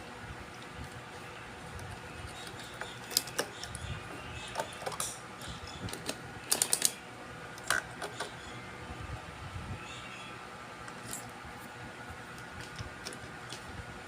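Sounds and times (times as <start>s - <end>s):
hand tools clicking and tapping: 1.9s - 3.8s, 4.5s - 7.0s.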